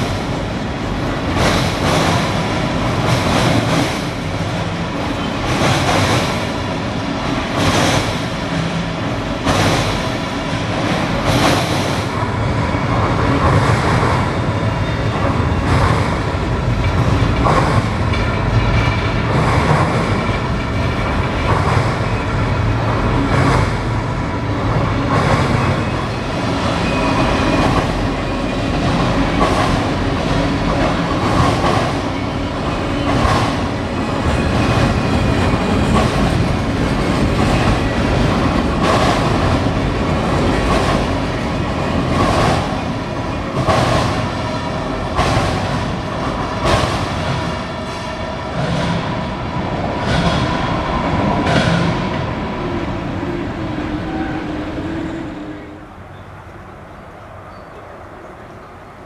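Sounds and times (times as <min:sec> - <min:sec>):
freight train cars rumbling: 0:00.0 - 0:59.0
wheels clacking over rail joints: 0:12.8 - 0:24.0, 0:24.7 - 0:47.8.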